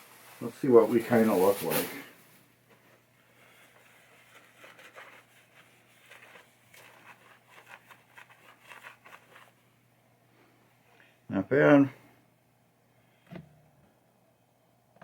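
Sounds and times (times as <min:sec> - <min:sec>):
towel rubbing on playfield: 0:00.0 - 0:02.2, 0:03.3 - 0:09.6.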